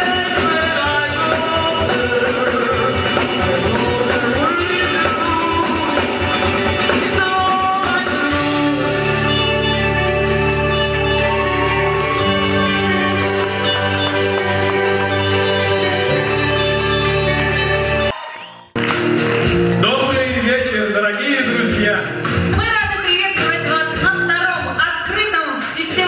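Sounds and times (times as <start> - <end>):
rock band playing: 0.0 - 18.2, 18.8 - 26.0
person singing: 0.0 - 18.4.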